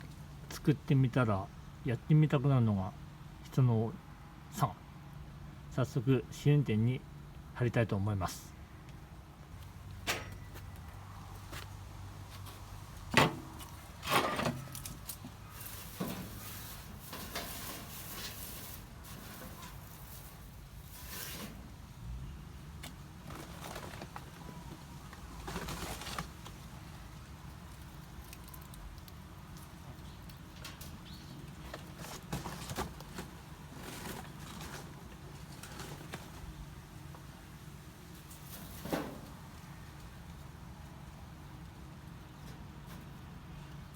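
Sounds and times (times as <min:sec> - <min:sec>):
rustling: 0:09.6 - 0:22.0, 0:22.8 - 0:36.9.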